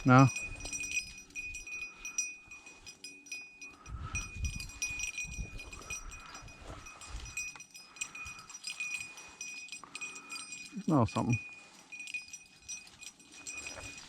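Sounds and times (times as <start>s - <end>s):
faint high jingling: 0.0s - 14.0s
brush rustling: 11.4s - 14.0s.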